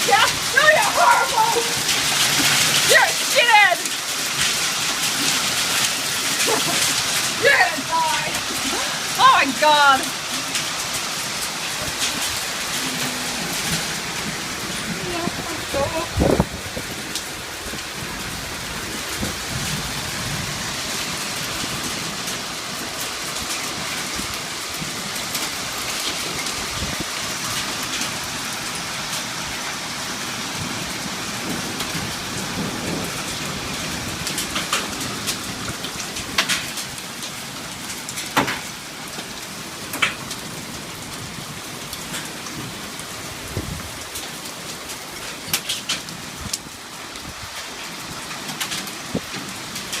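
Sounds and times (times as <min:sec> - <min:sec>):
sharp knocks of hailstones: 0:00.0 - 0:12.8, 0:30.6 - 0:40.5, 0:45.3 - 0:46.3, 0:48.2 - 0:50.0
hail and rain pelting: 0:00.0 - 0:50.0.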